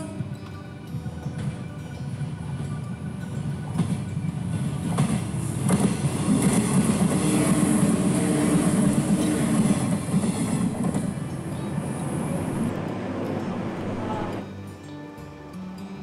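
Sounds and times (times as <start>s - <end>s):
wheels clacking over rails: 0.0s - 14.5s
electric train passing: 0.0s - 15.7s.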